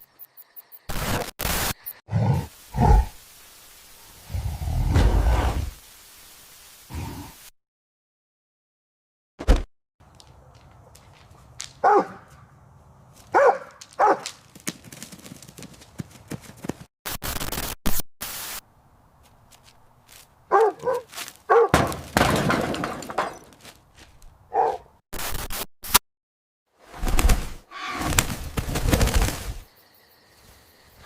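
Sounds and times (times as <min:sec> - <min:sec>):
loud hiss-like noise: 0:00.9 - 0:07.5, 0:18.2 - 0:18.6
dog barking: 0:11.8 - 0:12.4, 0:13.3 - 0:14.3, 0:20.5 - 0:21.8, 0:24.5 - 0:24.9.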